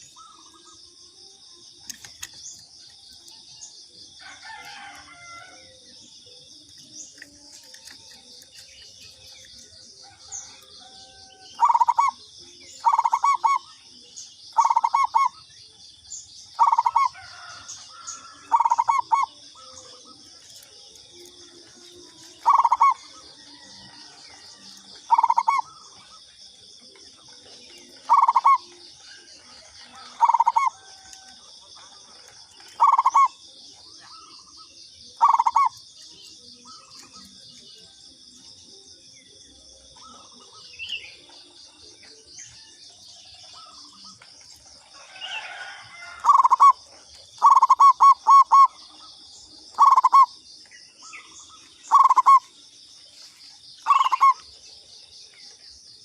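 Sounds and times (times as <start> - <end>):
high insect drone: 0.0 - 56.0
dove cooing: 7.1 - 13.8, 14.5 - 15.5, 16.5 - 26.2, 26.8 - 37.6, 43.5 - 50.4, 51.0 - 52.5, 53.8 - 54.5.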